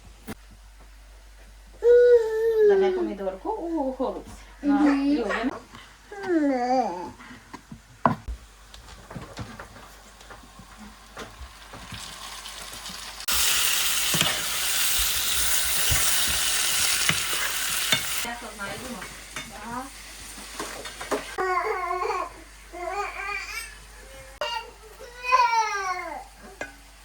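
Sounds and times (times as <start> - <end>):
kitchen clatter: 8.1 - 21.4
food sizzling in a pan: 9.6 - 24.1, 25.7 - 27.0.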